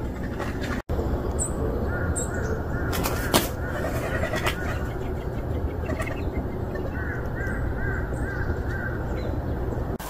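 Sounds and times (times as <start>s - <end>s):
bird calling: 0.0s - 10.0s
rushing background noise: 0.0s - 10.0s.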